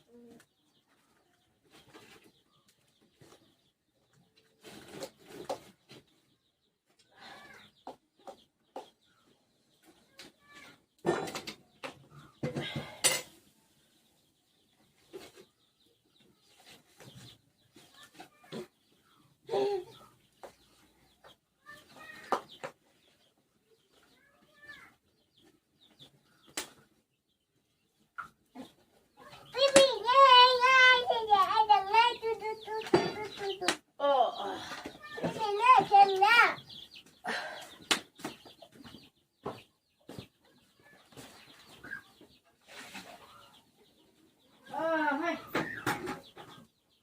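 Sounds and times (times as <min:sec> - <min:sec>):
chickens clucking: 0:11.1 - 0:47.0.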